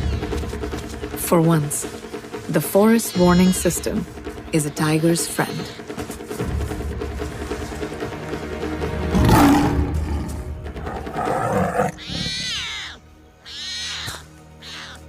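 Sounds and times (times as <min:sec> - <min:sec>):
background music: 0:00.0 - 0:15.0
tiger cub roaring and snarling: 0:09.0 - 0:15.0.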